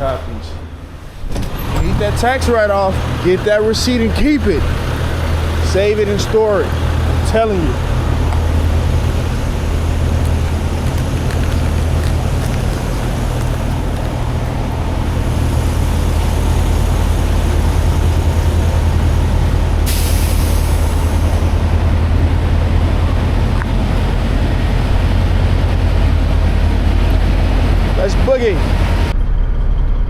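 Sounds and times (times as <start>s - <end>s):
diesel truck engine running: 0.8s - 30.0s
air brakes hiss: 19.8s - 21.6s.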